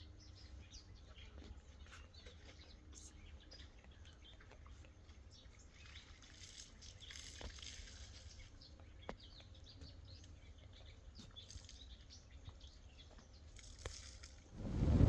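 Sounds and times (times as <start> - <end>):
low outdoor rumble: 14.5 - 15.0.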